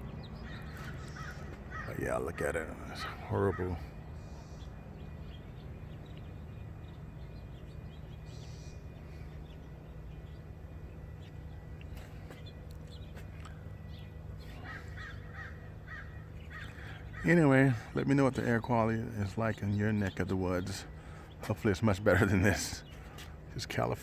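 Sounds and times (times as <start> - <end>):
bird calling: 0.0 - 24.0
low background hum: 0.0 - 24.0.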